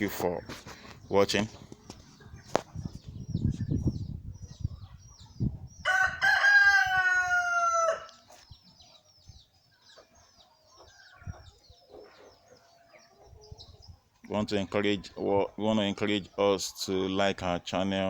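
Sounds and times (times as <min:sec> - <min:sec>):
small birds chirping: 0:00.0 - 0:18.0
rooster crowing: 0:05.8 - 0:08.2.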